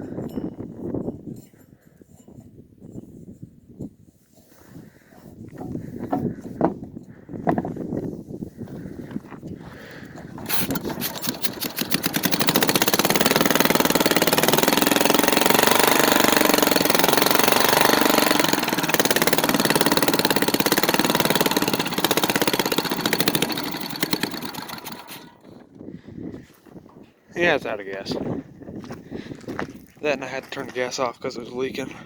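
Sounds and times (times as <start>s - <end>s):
small engine starting and sputtering: 9.6s - 25.8s.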